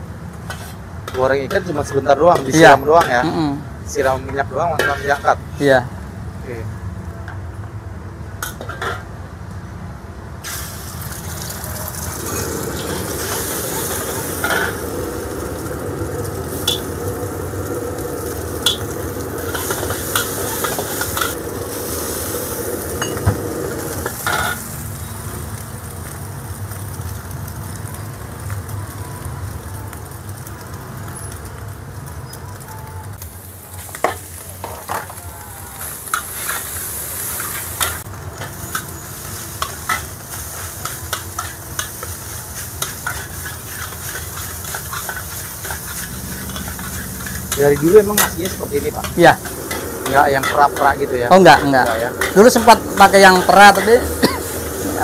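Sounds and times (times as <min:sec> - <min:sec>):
food sizzling in a wok: 0:00.0 - 0:06.9, 0:10.3 - 0:55.0
metal spatula scraping a wok: 0:00.4 - 0:03.2, 0:04.8 - 0:05.4, 0:12.0 - 0:24.7, 0:35.8 - 0:55.0.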